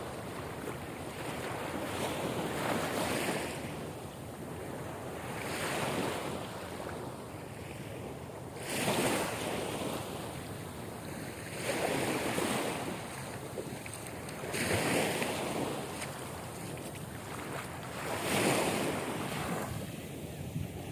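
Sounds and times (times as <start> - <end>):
ocean waves washing in: 4.9 - 20.9.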